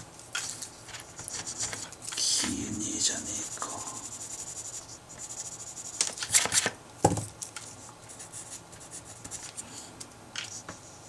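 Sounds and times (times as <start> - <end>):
scratchy paper rustles: 0.4 - 2.6.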